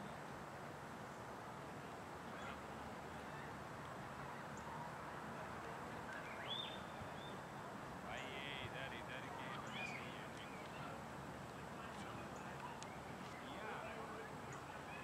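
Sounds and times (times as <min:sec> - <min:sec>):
outdoor background hiss: 0:00.0 - 0:15.0
bird calling: 0:06.2 - 0:07.5, 0:08.1 - 0:11.0.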